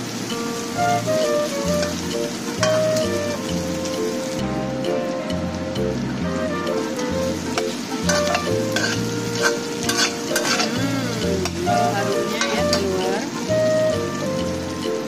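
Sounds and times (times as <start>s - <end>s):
background music with bass line: 0.0s - 15.0s
food sizzling in a pan: 0.0s - 15.0s
spatula scraping a pan: 1.8s - 3.2s, 7.0s - 13.2s
spatula clicking against pan: 7.5s - 11.6s.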